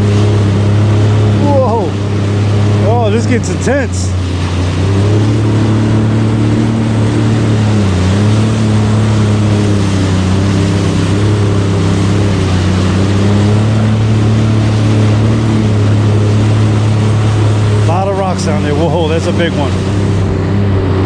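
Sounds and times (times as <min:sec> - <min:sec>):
jet ski engine: 0:00.0 - 0:21.0
rushing water: 0:00.0 - 0:21.0.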